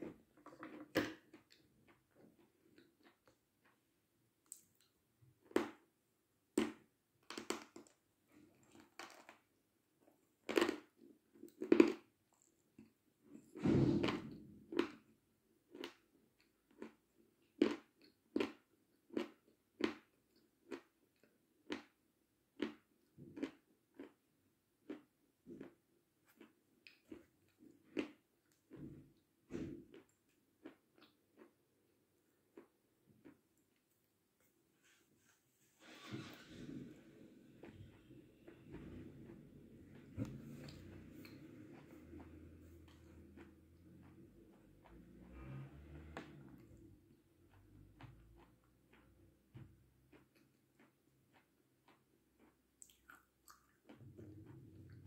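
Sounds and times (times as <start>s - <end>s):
person crunching and chewing: 8.6s - 9.4s, 10.4s - 12.1s, 22.6s - 28.7s, 37.6s - 44.9s, 47.5s - 55.0s.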